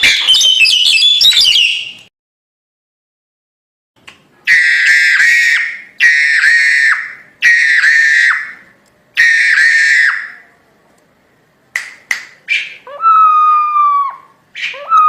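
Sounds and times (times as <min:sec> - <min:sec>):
myna screeching calls: 0:04.5 - 0:08.6, 0:09.2 - 0:10.4, 0:12.5 - 0:15.0.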